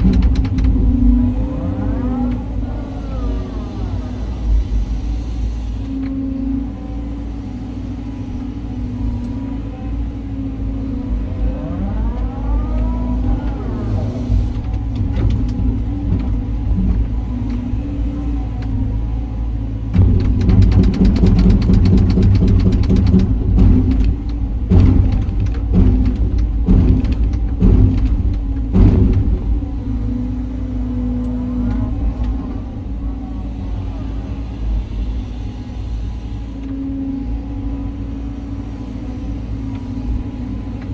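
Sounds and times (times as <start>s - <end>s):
excavator diesel engine running: 0.0s - 40.9s
hydraulic whine: 0.0s - 40.9s.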